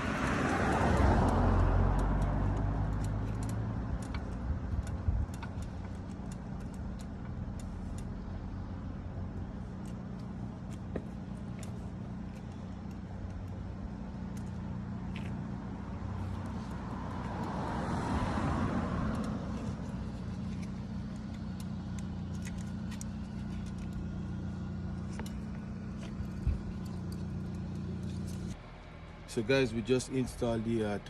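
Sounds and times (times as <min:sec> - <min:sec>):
car passing by: 0:00.0 - 0:03.6, 0:16.0 - 0:20.6
steady low hum: 0:18.2 - 0:31.0.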